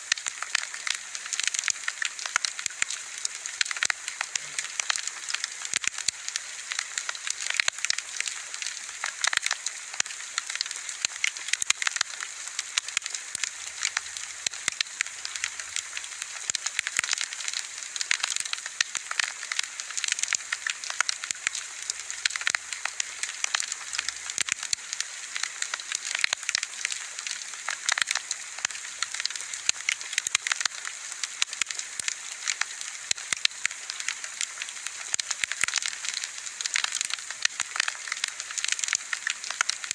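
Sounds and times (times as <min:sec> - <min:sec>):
wood fire crackling and popping: 0:00.1 - 0:39.9.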